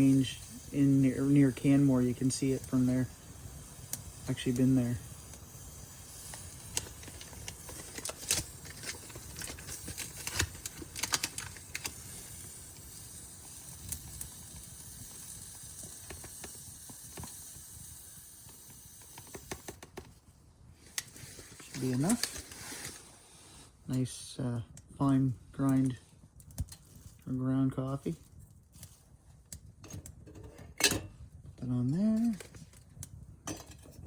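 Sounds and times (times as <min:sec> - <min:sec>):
coffee bag rustling: 0:06.6 - 0:12.1, 0:21.0 - 0:23.7.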